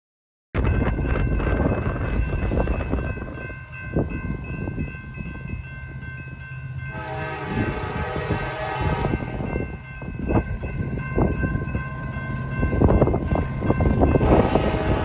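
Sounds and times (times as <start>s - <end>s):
freight train rumbling: 0.6s - 15.0s
locomotive horn: 6.9s - 9.5s, 14.2s - 15.0s.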